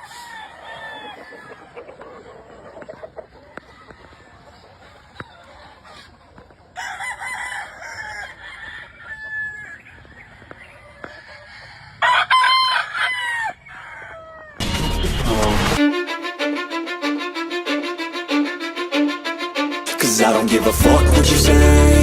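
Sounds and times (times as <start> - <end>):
roosters crowing: 0.0 - 6.1, 6.7 - 14.8
soft rooster calls: 6.8 - 14.6.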